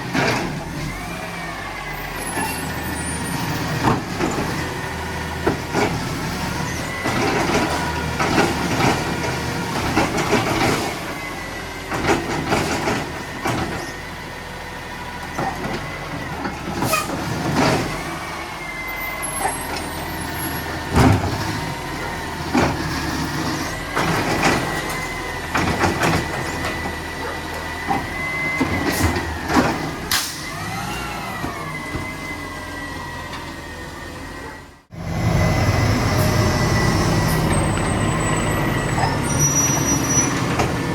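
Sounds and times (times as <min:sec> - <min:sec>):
garbage truck engine: 0:00.0 - 0:40.9
garbage truck hydraulic whine: 0:00.1 - 0:40.9.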